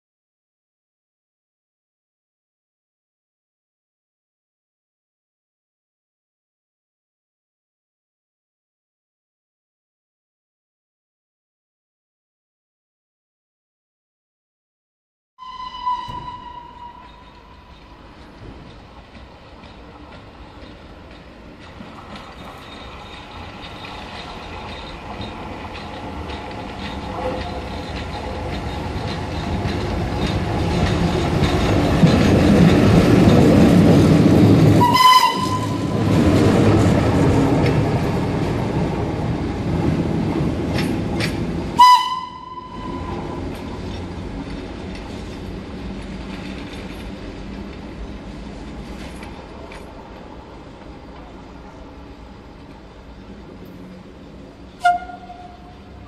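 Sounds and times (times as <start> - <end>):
train horn blasts: 15.4 - 17.8, 34.8 - 36.1, 41.8 - 43.4, 54.8 - 56.0
train running past: 15.4 - 56.0.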